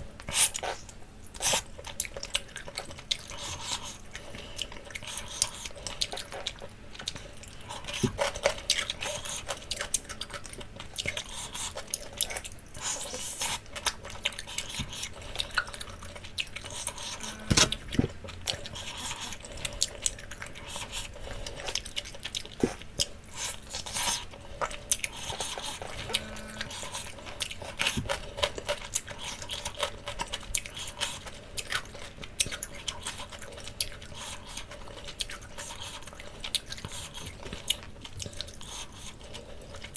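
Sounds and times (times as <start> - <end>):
person chewing wetly: 0.2 - 39.9.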